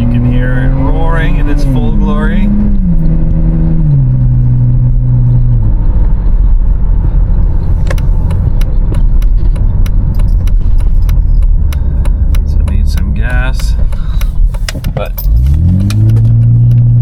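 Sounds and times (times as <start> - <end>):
car engine droning: 0.0 - 17.0
sharp ticks and rattles: 7.9 - 16.9.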